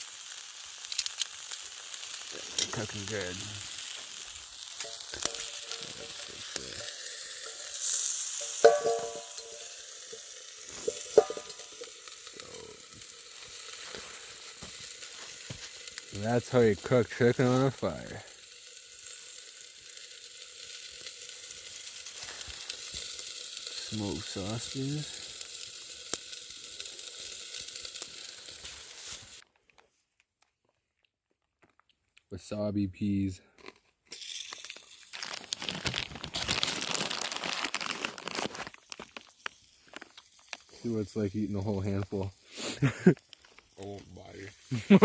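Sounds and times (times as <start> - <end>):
meat sizzling on hot rock: 0.0 - 29.4, 34.0 - 45.0
sharp pops: 2.3 - 12.2
sharp clink: 8.4 - 9.7.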